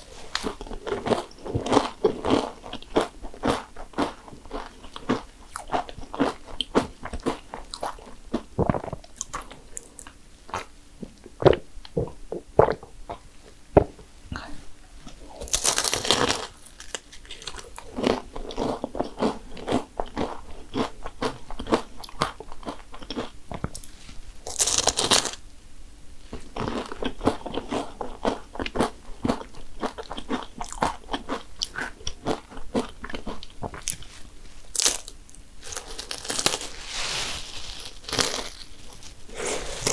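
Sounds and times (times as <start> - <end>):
crunching crisp pastry shells: 15.4 - 25.4, 26.5 - 39.9.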